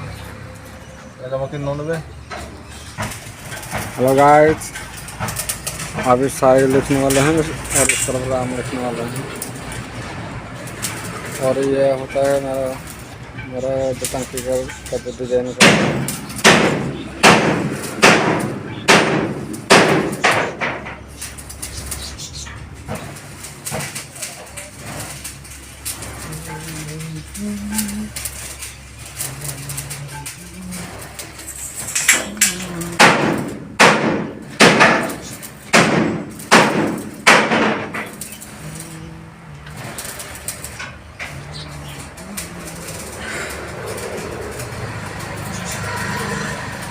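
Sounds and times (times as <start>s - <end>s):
hammer striking metal: 14.2s - 21.0s, 31.4s - 38.6s.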